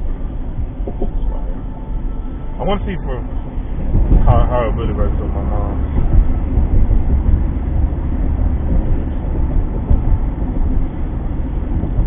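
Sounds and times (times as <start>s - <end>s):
car driving rumble: 0.0s - 12.0s.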